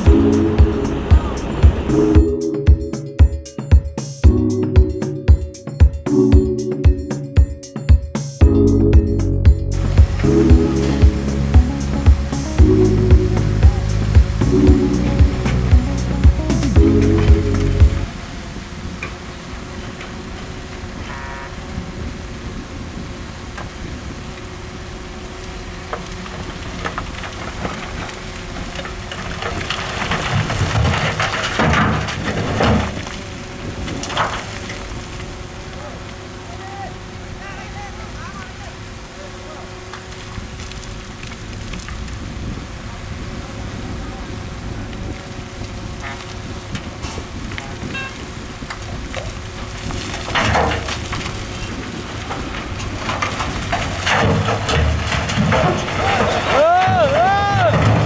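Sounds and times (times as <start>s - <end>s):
rumbling rush of noise: 0.0s - 2.9s, 8.4s - 58.0s
construction machinery engine hum: 0.0s - 3.3s, 8.4s - 58.0s
crackles: 9.6s - 58.0s
stones crunching and rattling: 25.8s - 35.6s, 48.2s - 58.0s.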